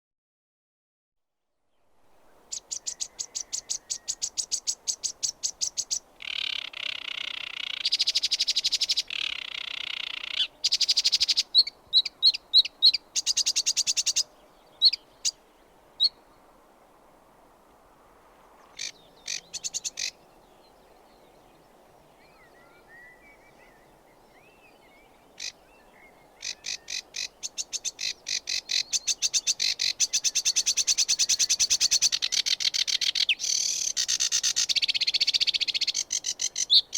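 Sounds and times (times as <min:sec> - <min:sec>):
warbler singing trills: 0:02.3 - 0:16.4, 0:18.7 - 0:36.9.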